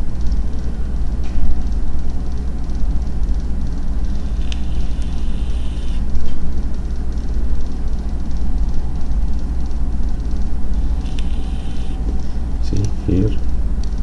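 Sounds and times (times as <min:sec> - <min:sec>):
deep engine-like rumble: 0:00.0 - 0:14.0.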